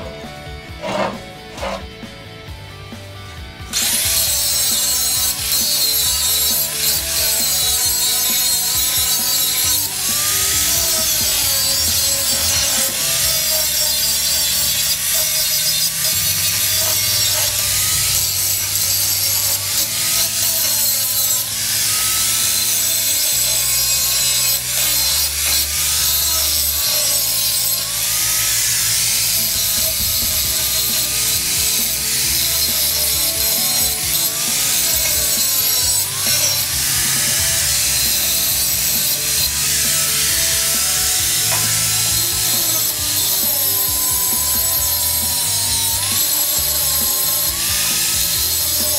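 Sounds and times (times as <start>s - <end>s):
angle grinder grinding steel: 0.0s - 48.9s.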